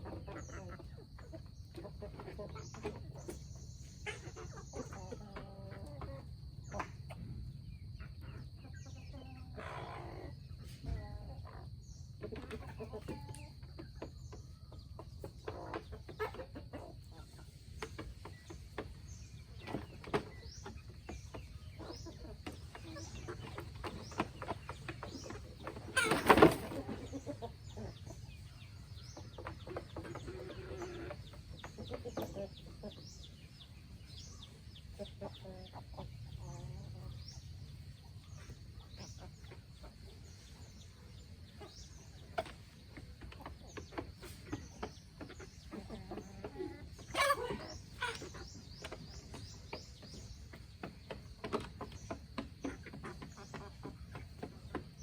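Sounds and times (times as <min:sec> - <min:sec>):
chickens clucking: 0:00.0 - 0:55.0
chicken squawk: 0:25.8 - 0:27.9, 0:45.8 - 0:48.5.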